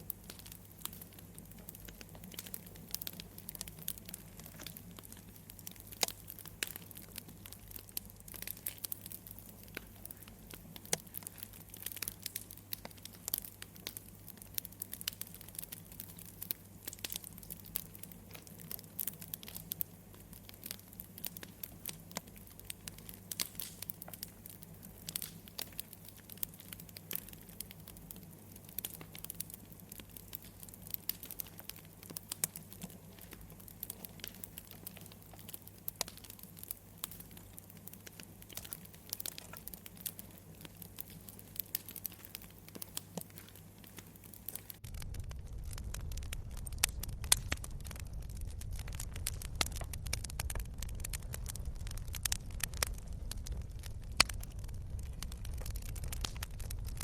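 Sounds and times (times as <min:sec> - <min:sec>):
campfire crackling: 0:00.0 - 0:57.0
low hum: 0:44.8 - 0:57.0
low rumble: 0:44.8 - 0:57.0.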